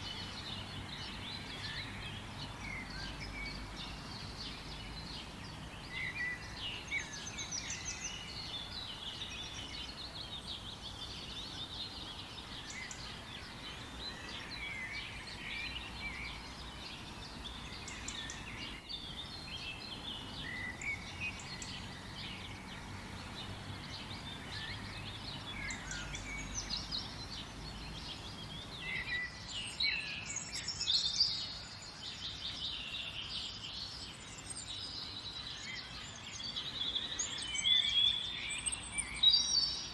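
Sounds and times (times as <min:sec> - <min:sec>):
low steady hiss: 0:00.0 - 0:39.9
small birds chirping and trilling: 0:00.0 - 0:39.9.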